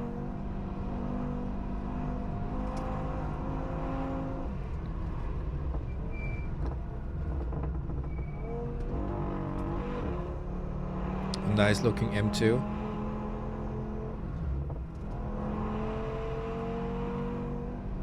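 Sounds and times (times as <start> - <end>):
road and wind rumble: 0.0 - 18.0
car engine running hard: 9.1 - 17.9.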